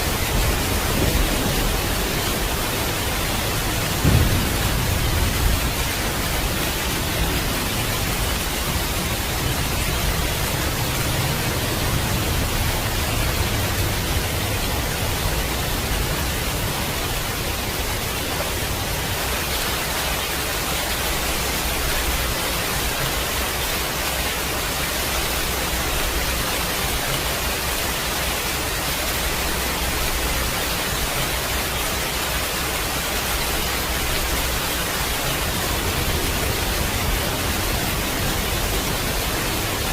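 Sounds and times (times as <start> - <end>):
thunder rumble: 0.0 - 20.0
heavy rain hiss: 0.0 - 39.9.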